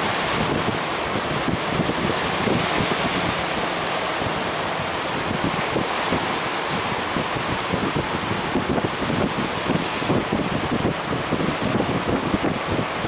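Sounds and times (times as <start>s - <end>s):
ocean waves breaking: 0.0s - 13.0s
wind buffeting microphone: 0.0s - 13.0s.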